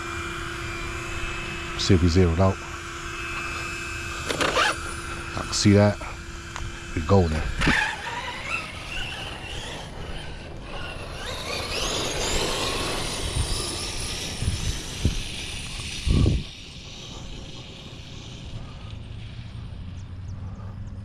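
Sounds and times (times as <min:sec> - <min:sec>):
electric rc truck motor whine: 0:00.0 - 0:21.0.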